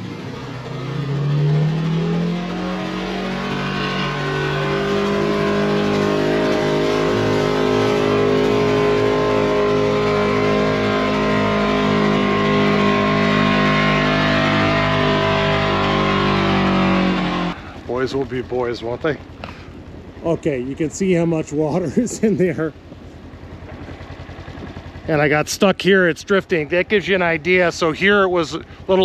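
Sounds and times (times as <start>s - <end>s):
side-by-side engine revving: 0.0s - 22.7s.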